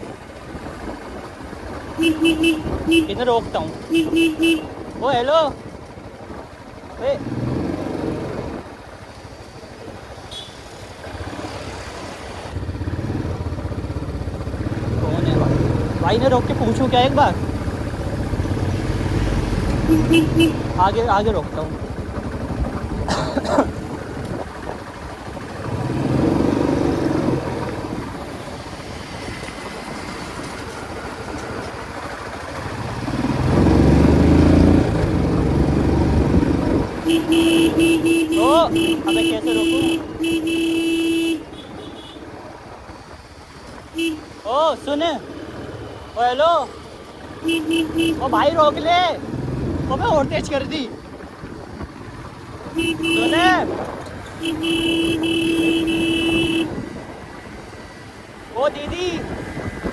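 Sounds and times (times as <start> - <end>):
motorcycle engine running: 1.2 - 5.2, 12.5 - 42.2, 45.4 - 57.0
horn blasts: 2.0 - 3.2, 3.9 - 4.8, 19.8 - 20.8, 37.0 - 42.2, 44.0 - 44.3, 47.4 - 48.5, 52.8 - 53.6, 54.4 - 56.8.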